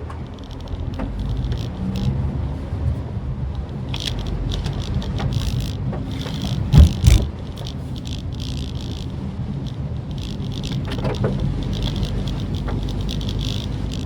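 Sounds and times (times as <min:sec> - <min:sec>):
car engine and road noise: 0:00.0 - 0:14.0
heavy thumps: 0:04.8 - 0:09.1.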